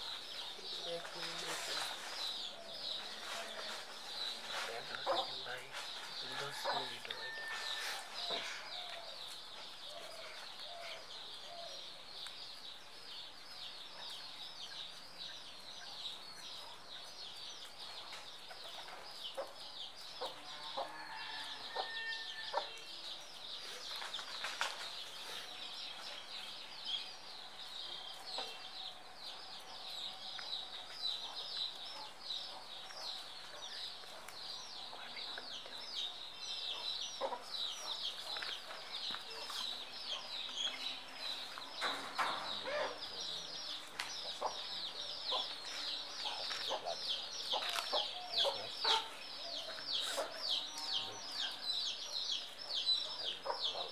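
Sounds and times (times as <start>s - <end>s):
many birds chirping: 0.0s - 53.9s.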